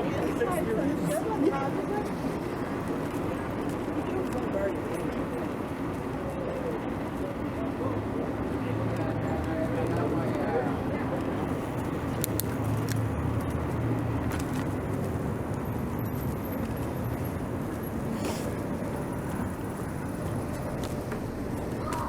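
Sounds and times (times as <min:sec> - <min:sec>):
road noise rushing: 0:00.0 - 0:22.0
car engine hum: 0:07.8 - 0:22.0.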